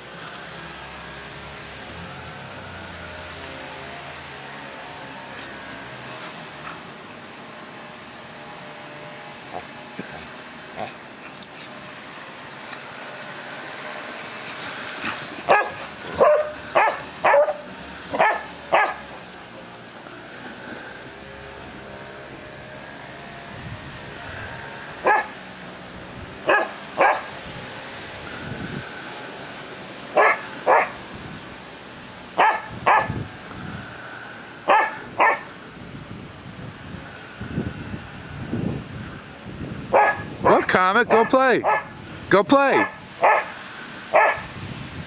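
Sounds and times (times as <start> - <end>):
dog barking: 15.5 - 19.1, 25.0 - 25.4, 26.5 - 27.3, 30.2 - 31.0, 32.4 - 33.2, 34.7 - 35.4, 39.9 - 41.9, 42.8 - 43.5, 44.1 - 44.5.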